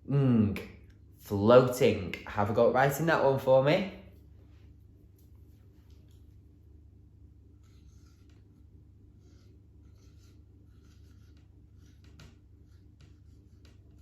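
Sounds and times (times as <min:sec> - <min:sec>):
low steady hum: 0:00.0 - 0:14.0
pen scratching: 0:07.5 - 0:14.0.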